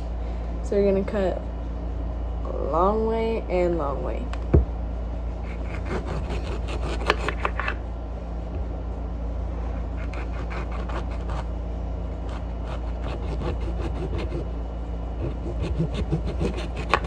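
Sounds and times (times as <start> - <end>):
steady low hum: 0.0 - 17.0
knife cutting lemon: 5.4 - 7.8, 9.8 - 11.5, 12.2 - 14.4, 15.2 - 17.0.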